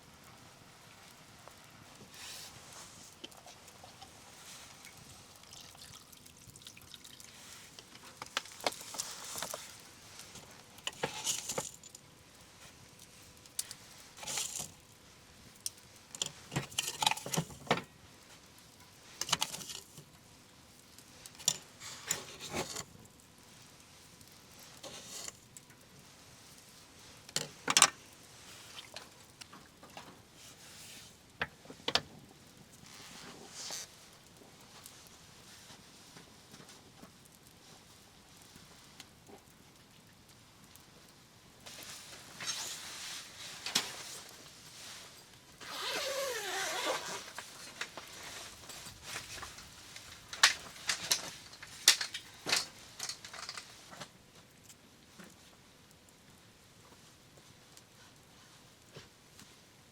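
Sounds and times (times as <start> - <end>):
small objects clinking and rustling: 6.6 - 12.0, 14.1 - 14.8, 16.2 - 17.8, 19.1 - 20.1, 45.6 - 54.1.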